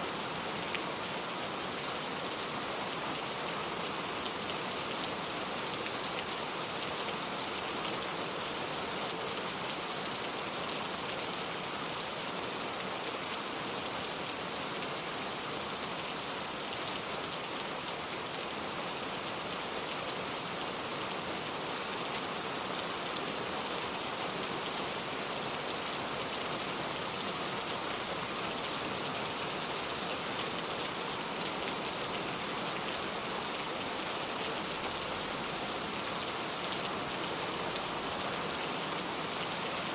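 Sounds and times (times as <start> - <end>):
heavy rain pouring: 23.5 - 39.9.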